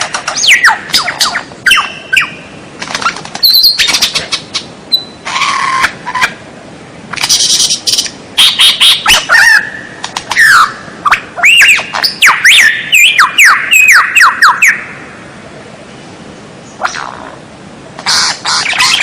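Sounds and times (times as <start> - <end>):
bird singing whistling song: 0.4 - 2.4, 3.4 - 4.2, 4.9 - 5.2, 11.4 - 14.8.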